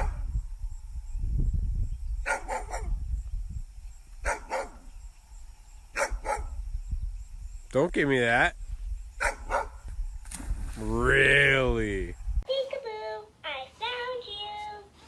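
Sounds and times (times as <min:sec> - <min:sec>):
dog barking: 0:00.0 - 0:00.2, 0:02.2 - 0:03.0, 0:04.2 - 0:04.9, 0:06.0 - 0:06.6, 0:09.2 - 0:09.8.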